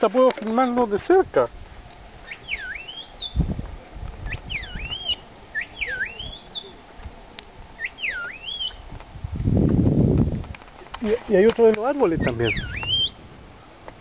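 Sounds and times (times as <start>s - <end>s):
bird whistling: 2.2s - 3.5s, 4.2s - 6.8s, 7.8s - 8.8s, 12.2s - 13.2s.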